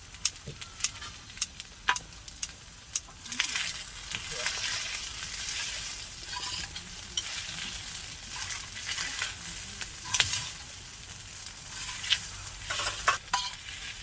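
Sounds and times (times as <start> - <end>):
utensil clicking against pan: 0.0 - 13.7
food sizzling on a griddle: 0.0 - 14.0
utensil scraping a pan: 3.2 - 14.0.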